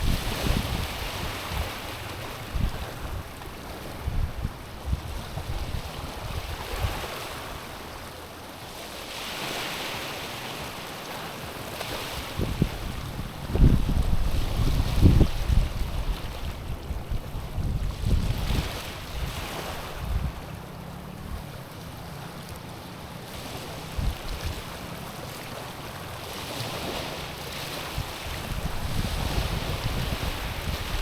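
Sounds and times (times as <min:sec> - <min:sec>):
wind buffeting microphone: 0:00.0 - 0:07.4, 0:12.2 - 0:22.1, 0:23.4 - 0:24.9, 0:26.3 - 0:31.0
waves lapping on stony shore: 0:00.0 - 0:31.0.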